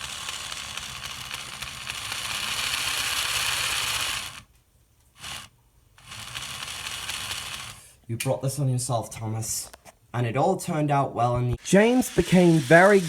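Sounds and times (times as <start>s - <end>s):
geared mechanism whirring and rattling: 0.0s - 4.5s, 5.1s - 7.9s, 11.6s - 13.0s.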